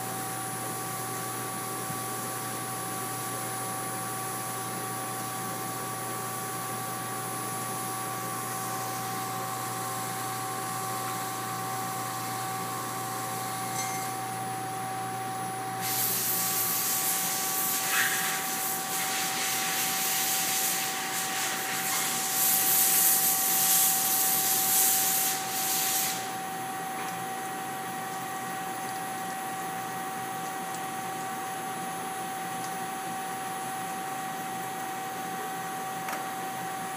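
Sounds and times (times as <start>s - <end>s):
rough hissing grind on stone: 15.8s - 26.3s.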